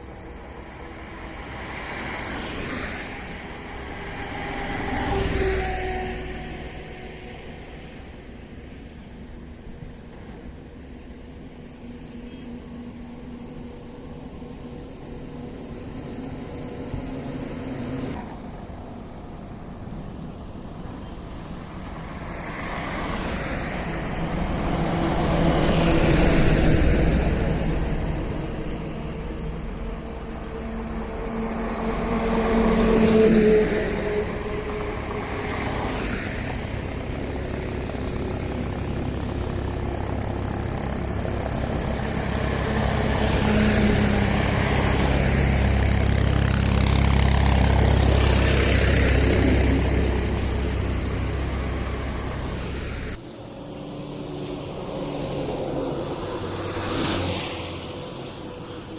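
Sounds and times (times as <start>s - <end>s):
vehicles passing on highway: 0.0s - 58.9s.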